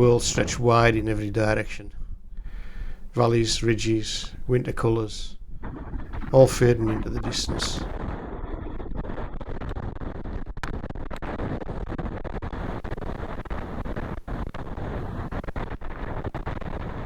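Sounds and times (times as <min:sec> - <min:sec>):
strong wind buffeting microphone: 0:00.0 - 0:09.0, 0:12.6 - 0:17.0.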